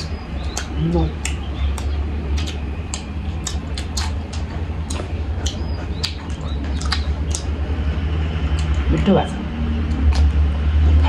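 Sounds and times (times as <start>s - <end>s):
wet chewing mouth clicks: 0.0s - 7.6s, 8.5s - 8.9s, 9.8s - 10.4s
steady low hum: 0.0s - 11.0s.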